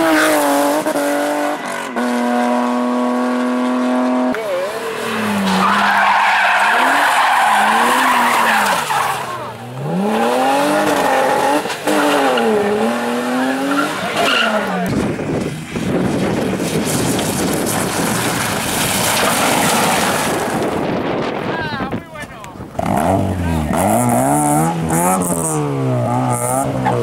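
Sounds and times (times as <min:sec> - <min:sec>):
rally car engine revving: 0:00.0 - 0:21.4, 0:22.6 - 0:27.0
tyres squealing: 0:04.4 - 0:09.6.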